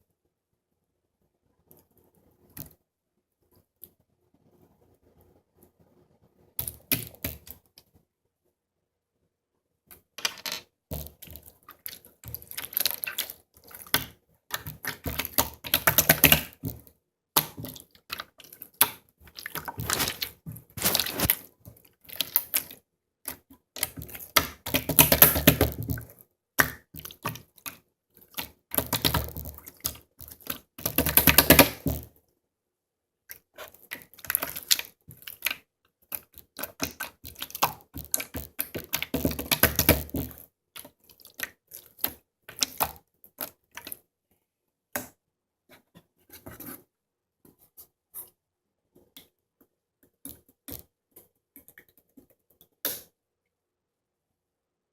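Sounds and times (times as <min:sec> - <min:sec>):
slime squished by hand: 0:17.4 - 0:21.5.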